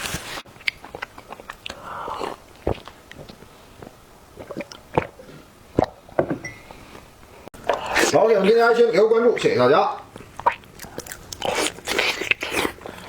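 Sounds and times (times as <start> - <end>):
chewing and biting food: 0.5 - 6.0, 7.6 - 8.5, 10.1 - 13.0
wet mouth clicks: 7.6 - 8.2, 10.2 - 13.0
food crunches: 10.1 - 13.0.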